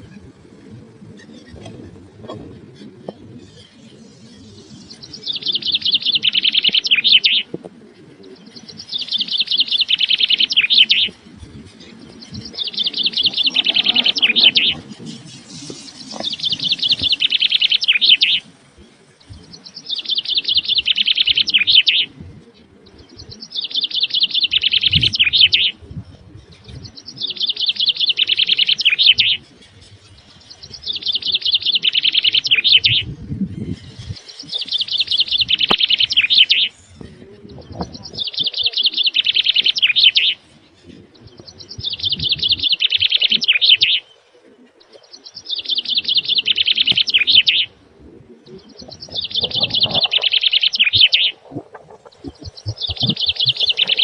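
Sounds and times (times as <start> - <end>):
bird singing high trilling phrase: 12.9 - 14.9, 52.0 - 54.0.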